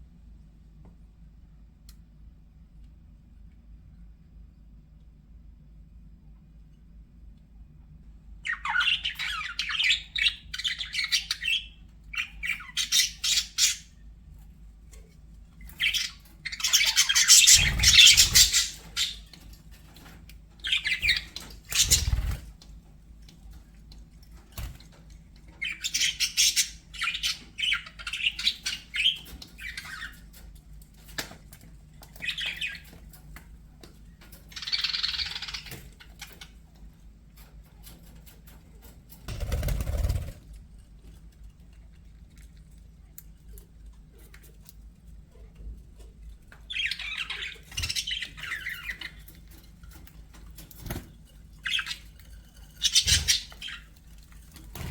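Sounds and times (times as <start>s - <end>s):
budgerigars chattering and squawking: 8.5s - 14.0s, 15.7s - 19.4s, 20.6s - 22.5s, 25.6s - 30.2s, 34.5s - 36.6s, 46.7s - 50.6s, 51.6s - 54.9s.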